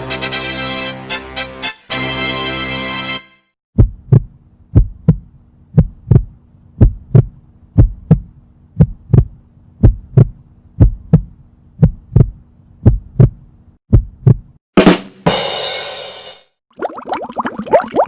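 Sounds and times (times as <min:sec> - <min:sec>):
faint steady hum: 0:03.8 - 0:13.8
heartbeat thumps: 0:03.8 - 0:14.6.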